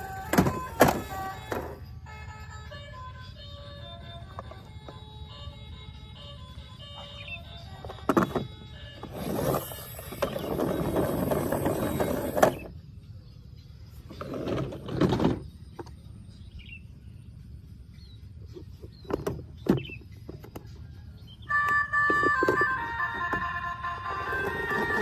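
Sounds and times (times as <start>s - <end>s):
plastic toys rattling and scraping: 0.0s - 1.9s, 4.2s - 5.1s, 7.6s - 12.8s, 13.9s - 16.0s, 18.4s - 20.8s, 21.4s - 25.0s.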